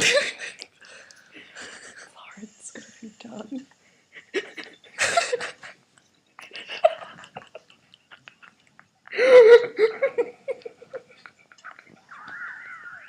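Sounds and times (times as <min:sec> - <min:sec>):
people laughing and giggling: 0:06.4 - 0:13.0.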